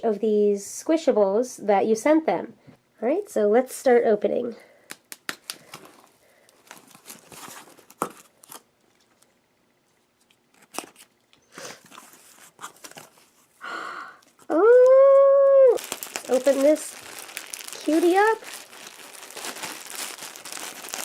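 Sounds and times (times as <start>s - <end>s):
packaging tearing and crinkling: 6.6s - 9.1s, 10.5s - 11.2s, 15.7s - 21.0s.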